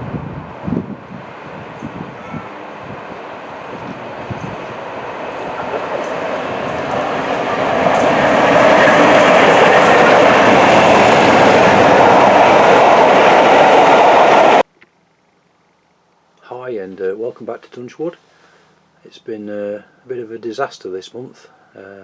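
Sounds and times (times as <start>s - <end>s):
train running on rails: 0.0s - 14.6s.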